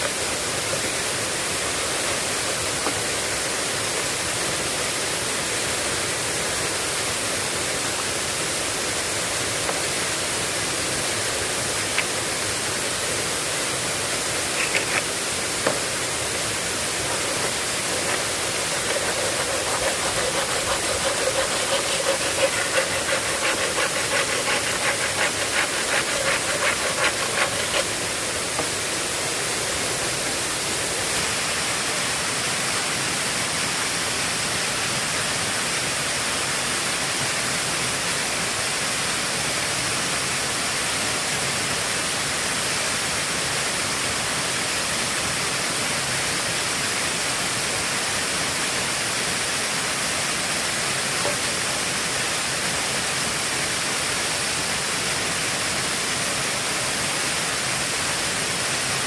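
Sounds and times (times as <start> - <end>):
fast run of ticks: 14.2 - 16.0, 16.8 - 28.8.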